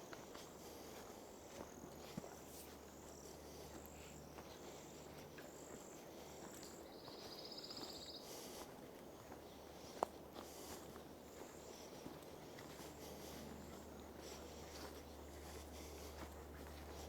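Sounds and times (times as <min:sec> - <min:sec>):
faint insect calls: 0:02.8 - 0:08.6.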